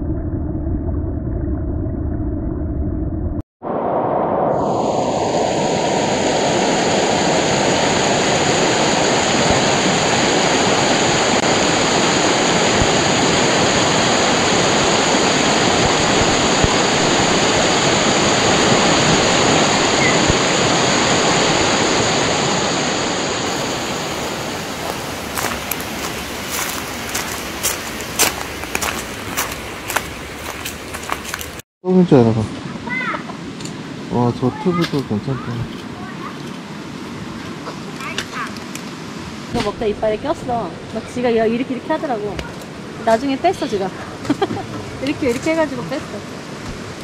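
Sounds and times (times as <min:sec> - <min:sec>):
stream rushing over rocks: 0:06.4 - 0:31.6.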